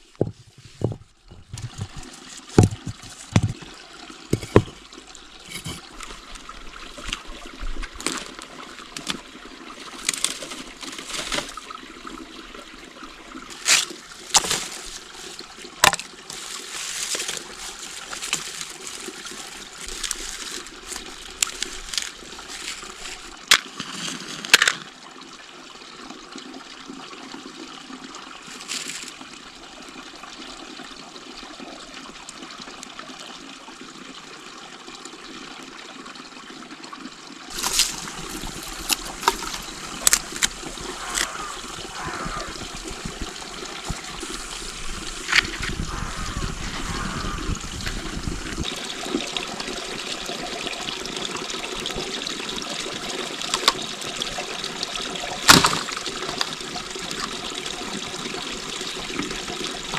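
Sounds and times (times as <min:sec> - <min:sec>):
water trickling: 0:00.0 - 0:59.9
sharp clicks and knocks: 0:00.2 - 0:03.7.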